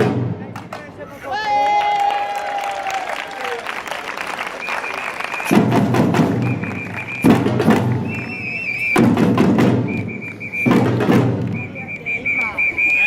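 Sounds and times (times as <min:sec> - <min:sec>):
samba drum group playing: 0:00.0 - 0:00.8, 0:05.3 - 0:12.4
trilled whistle blasts: 0:04.6 - 0:05.6, 0:06.2 - 0:09.2, 0:09.8 - 0:10.9, 0:11.5 - 0:13.0.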